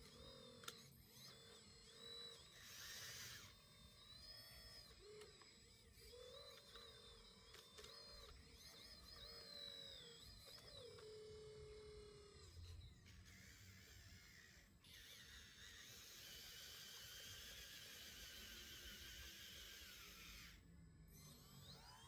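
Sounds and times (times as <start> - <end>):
small electric motor whine: 0.0 - 22.0.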